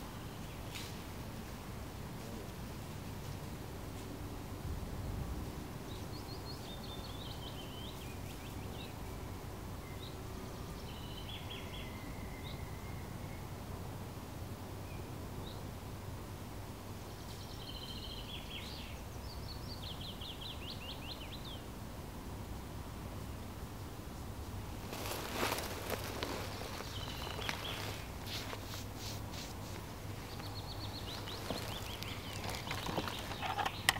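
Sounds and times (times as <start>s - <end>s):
songbird chirping and trilling: 5.8s - 13.6s, 17.0s - 21.7s, 24.9s - 28.8s, 29.6s - 33.9s.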